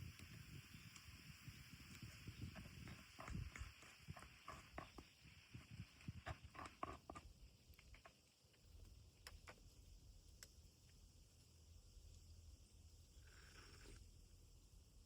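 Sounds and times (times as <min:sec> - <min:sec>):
faint small clicks and taps: 0:00.0 - 0:11.1.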